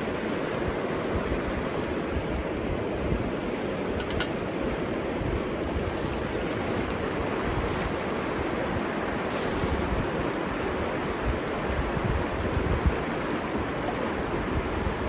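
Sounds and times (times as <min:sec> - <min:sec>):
river water rushing: 0:00.0 - 0:15.0
wind buffeting microphone: 0:00.0 - 0:15.0.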